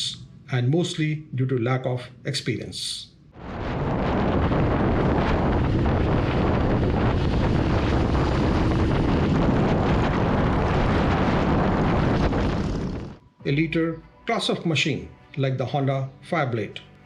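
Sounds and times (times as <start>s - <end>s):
low rumble: 3.2s - 13.4s
wind rush on microphone: 3.4s - 13.2s.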